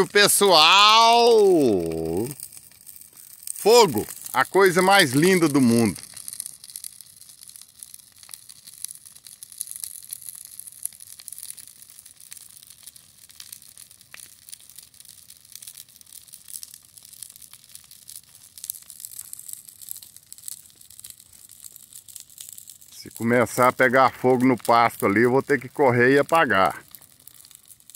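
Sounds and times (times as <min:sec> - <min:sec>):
steady high hiss: 0:00.0 - 0:02.4, 0:03.6 - 0:06.0
fire crackles and pops: 0:00.0 - 0:27.9.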